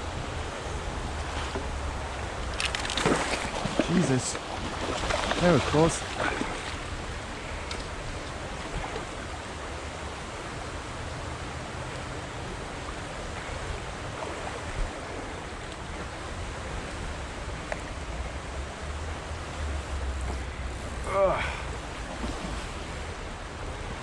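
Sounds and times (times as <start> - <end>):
river water flowing: 0.0 - 24.0.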